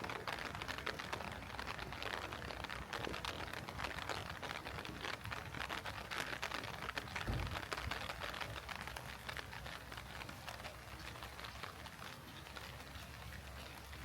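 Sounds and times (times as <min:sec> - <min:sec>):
heavy rain falling: 0:00.0 - 0:14.0
low thump: 0:07.2 - 0:07.7.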